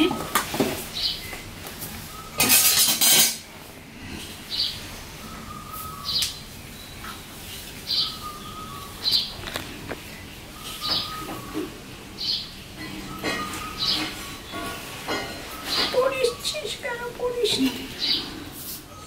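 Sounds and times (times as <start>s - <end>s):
bird chirping: 4.5s - 19.0s.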